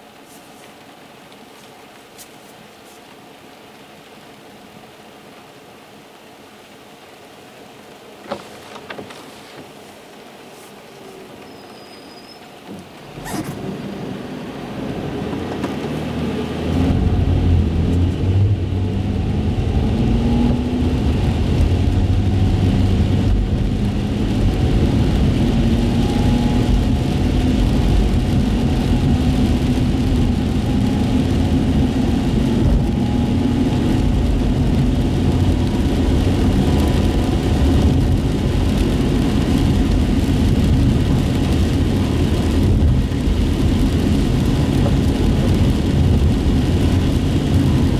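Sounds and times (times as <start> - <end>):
tyres on wet road: 0.0 - 47.9
car engine accelerating: 13.0 - 47.9.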